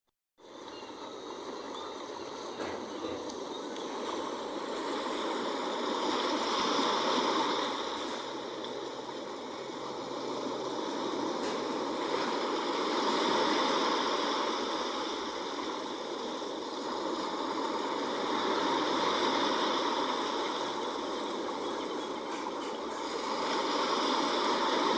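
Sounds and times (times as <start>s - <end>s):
sea waves washing in: 0.4s - 24.9s.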